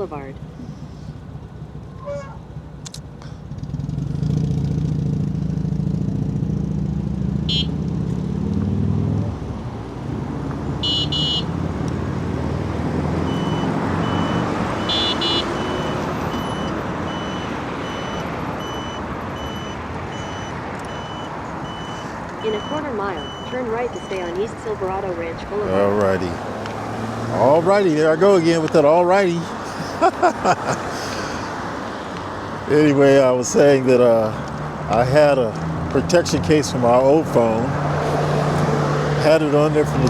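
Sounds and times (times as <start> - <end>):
traffic noise: 0.0 - 40.0
vehicle engine running close: 0.0 - 40.0
reversing beeper: 13.2 - 25.3.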